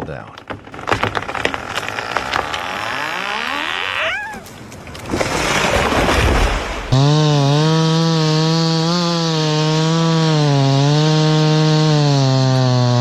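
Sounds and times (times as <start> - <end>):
chainsaw running: 0.7 - 4.4, 6.9 - 13.0.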